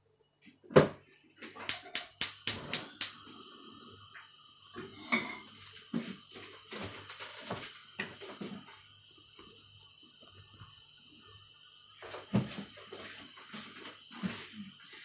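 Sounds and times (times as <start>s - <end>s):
sharp clicks and knocks: 1.4s - 3.2s
steady hiss: 1.5s - 15.0s.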